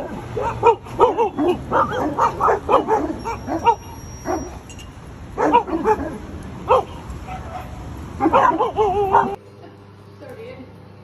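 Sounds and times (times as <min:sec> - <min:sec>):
dog yapping: 0:00.0 - 0:04.7, 0:05.4 - 0:09.4.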